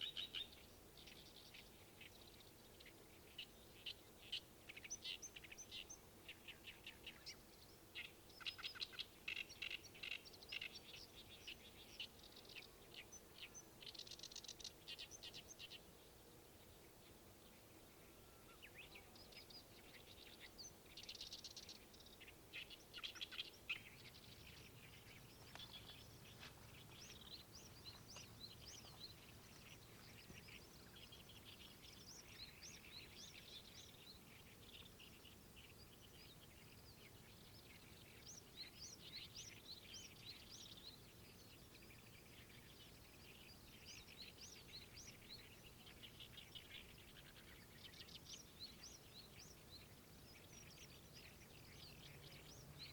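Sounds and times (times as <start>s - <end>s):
faint outdoor hush: 0.0s - 52.9s
songbirds chirping: 0.0s - 52.9s.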